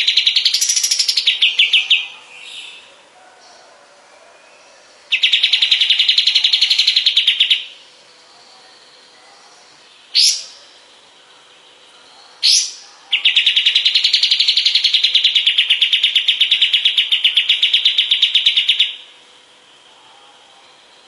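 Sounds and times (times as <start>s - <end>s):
bird song rapid trill: 0.0s - 2.9s, 5.1s - 9.2s, 9.9s - 10.8s, 11.4s - 19.1s.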